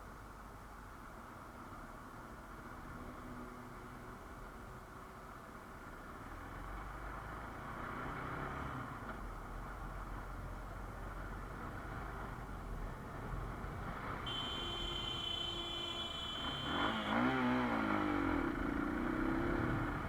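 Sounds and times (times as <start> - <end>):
motorcycle engine running: 14.3 - 20.0.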